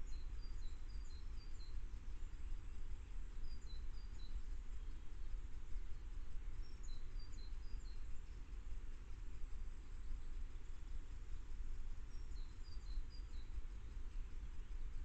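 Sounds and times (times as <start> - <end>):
songbird singing: 0.0 - 15.0
steady low rumble: 0.0 - 15.0.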